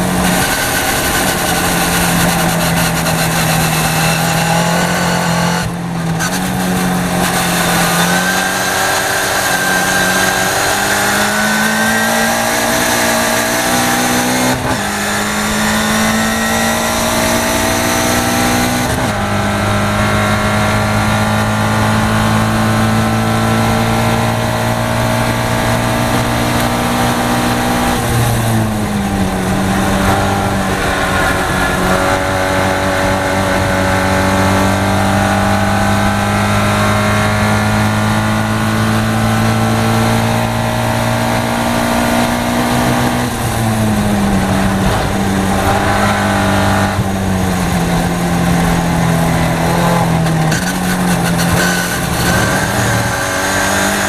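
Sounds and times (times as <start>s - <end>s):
race car engine at full throttle: 0.0s - 54.0s
wind rush: 23.2s - 54.0s.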